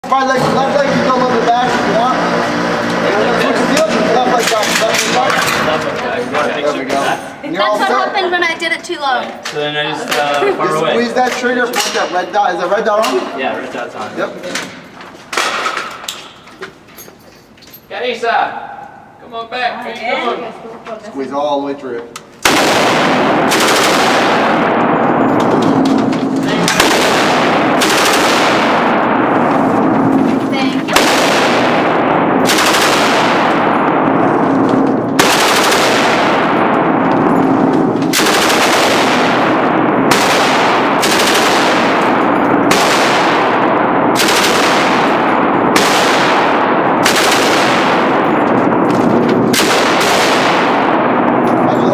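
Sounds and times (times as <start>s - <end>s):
gunshots ringing: 0.0s - 7.0s, 15.3s - 16.0s, 22.4s - 51.9s.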